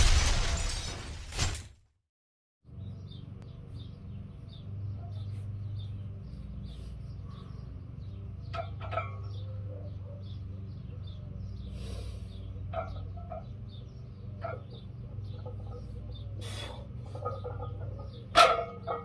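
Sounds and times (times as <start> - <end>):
glass shattering sound effect: 0.0 - 1.8.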